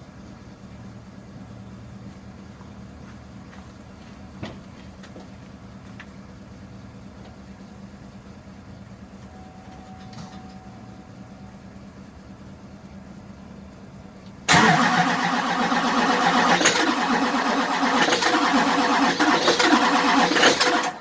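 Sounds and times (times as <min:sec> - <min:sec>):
faint steady tone: 0:07.6 - 0:14.4
diesel engine cranking: 0:14.4 - 0:21.0.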